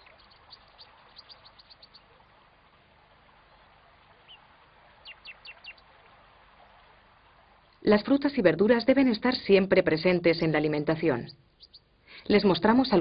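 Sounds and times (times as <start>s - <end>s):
small bird chirping: 0.0s - 2.2s, 3.5s - 5.9s, 11.1s - 11.9s.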